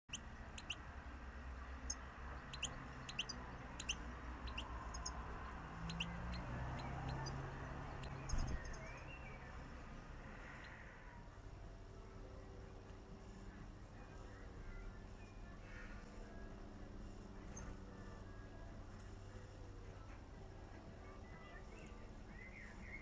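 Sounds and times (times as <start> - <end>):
small birds chirping: 0.1 - 11.2, 21.0 - 23.0
low steady hum: 0.1 - 23.0.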